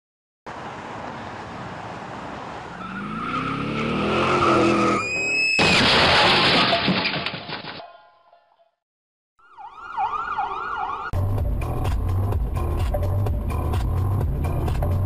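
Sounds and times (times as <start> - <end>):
road noise: 0.5 - 6.4, 9.4 - 15.0
tire squeal: 2.6 - 6.8
car engine revving: 2.8 - 5.0
loud crash of impact: 5.6 - 7.8.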